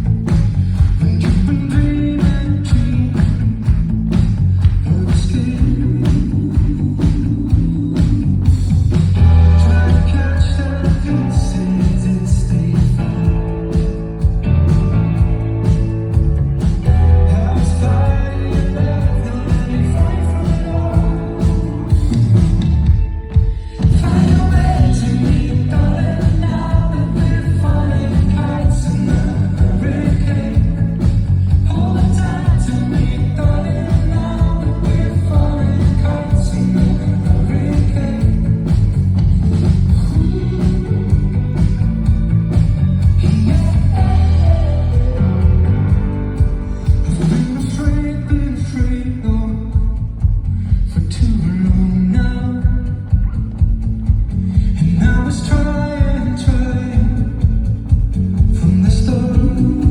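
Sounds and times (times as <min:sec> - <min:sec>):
drums hitting: 0:00.0 - 0:59.9
live band playing pop song: 0:00.0 - 0:59.9
person singing: 0:00.8 - 0:03.7, 0:09.2 - 0:13.9, 0:16.8 - 0:22.6, 0:23.3 - 0:39.0, 0:39.9 - 0:41.8, 0:43.0 - 0:53.4, 0:54.6 - 0:57.7, 0:58.4 - 0:59.9.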